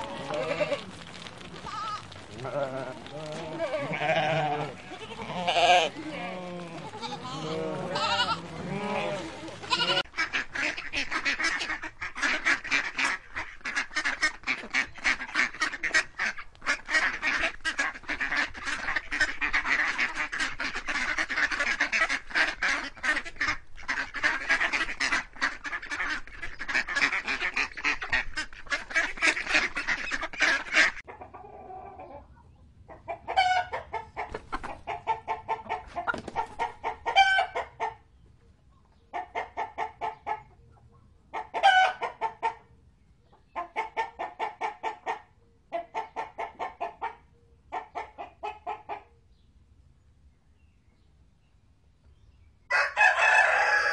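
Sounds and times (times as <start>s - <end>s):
chickens clucking: 0.0s - 49.2s
ducks quacking: 1.6s - 38.0s, 41.3s - 42.6s.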